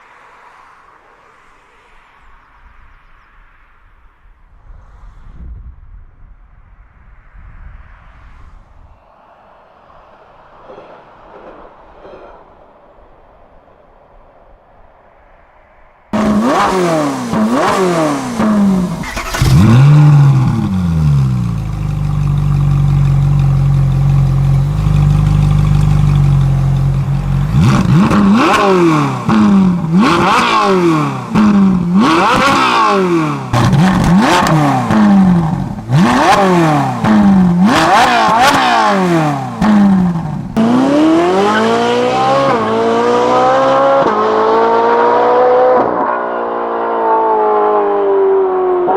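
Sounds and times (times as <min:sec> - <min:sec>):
car engine revving: 0:16.1 - 0:48.9
car accelerating away: 0:16.2 - 0:48.9.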